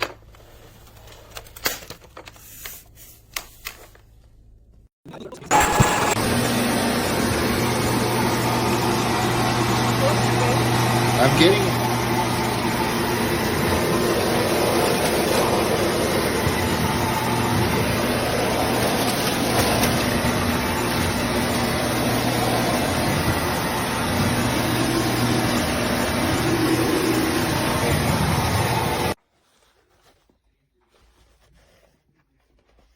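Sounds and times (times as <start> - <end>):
stick vacuum running: 5.4 - 29.2.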